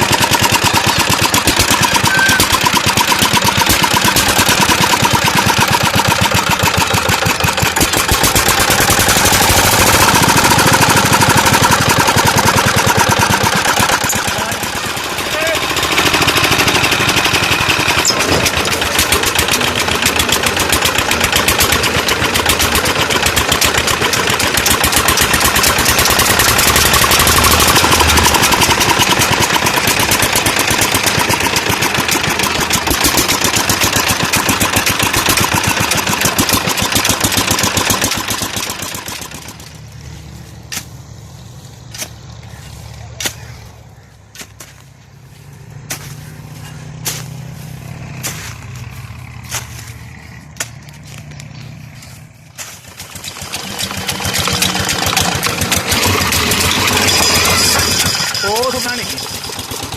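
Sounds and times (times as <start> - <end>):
diesel engine knocking: 0.0 - 59.9.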